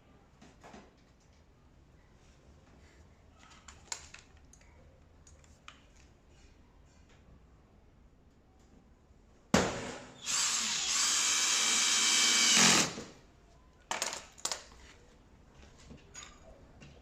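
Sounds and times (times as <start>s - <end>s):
power drill driving screw: 10.2s - 13.1s.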